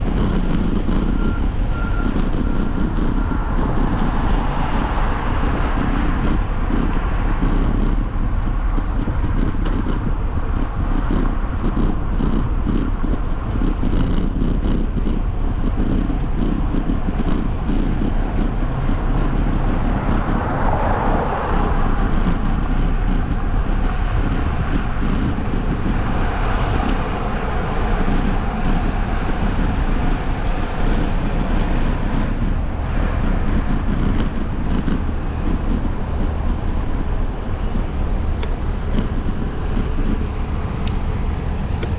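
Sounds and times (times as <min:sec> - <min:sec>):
bike road noise: 0:00.0 - 0:41.9
wind rumble: 0:00.0 - 0:41.9.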